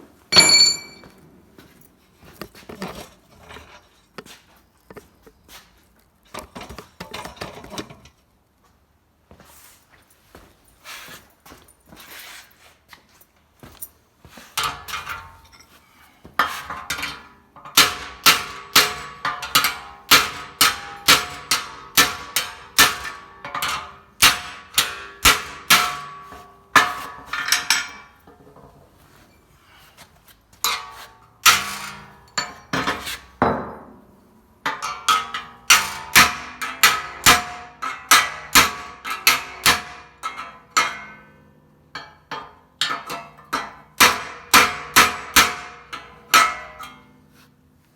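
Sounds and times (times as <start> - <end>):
hammer ringing on steel: 0.3 - 1.2.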